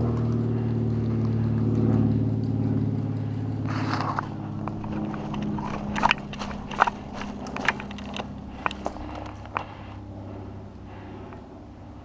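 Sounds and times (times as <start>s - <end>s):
low engine hum: 0.0s - 12.0s
rustling crunch: 3.7s - 10.0s.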